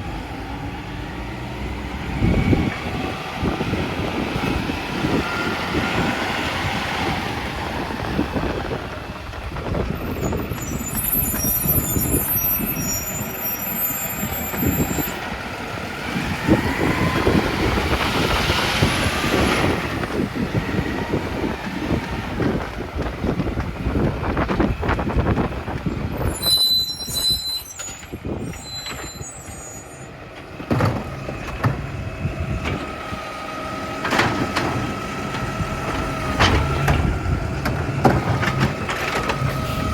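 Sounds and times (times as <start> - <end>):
garbage truck running: 0.0 - 39.9
clanks and knocks: 30.6 - 31.9, 34.0 - 39.7
rising whine: 39.3 - 39.9
air brake hissing: 39.4 - 39.9.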